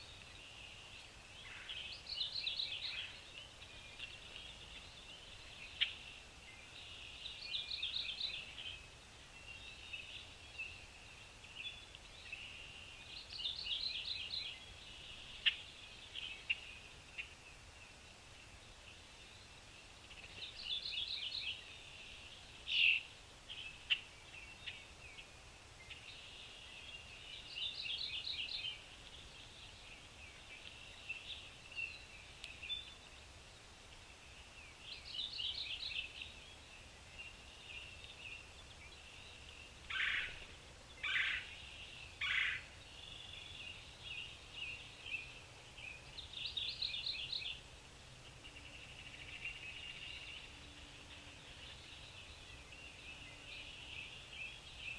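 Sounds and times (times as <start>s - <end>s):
sharp bird calls: 37.8s - 45.4s.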